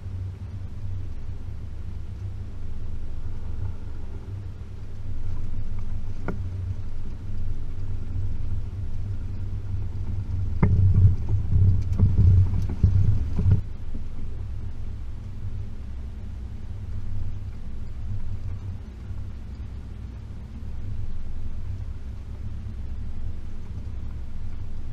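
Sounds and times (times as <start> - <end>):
vehicle engine rumbling: 0.0 - 24.9
vehicle knocking over bumps: 10.5 - 13.6.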